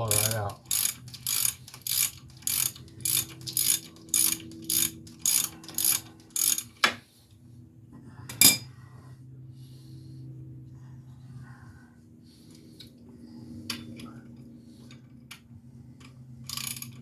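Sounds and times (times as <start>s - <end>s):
hand ratchet clicking: 0.0s - 6.9s, 16.0s - 17.0s.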